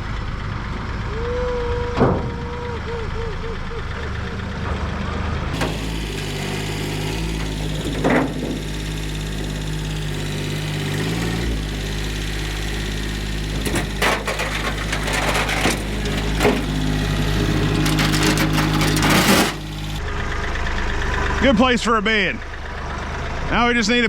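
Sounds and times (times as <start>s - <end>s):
clanks and cracking impacts: 5.6s - 20.0s
metal bang: 5.6s - 20.0s
truck bed knocking and scraping: 5.6s - 20.0s
tractor engine running: 5.6s - 20.5s.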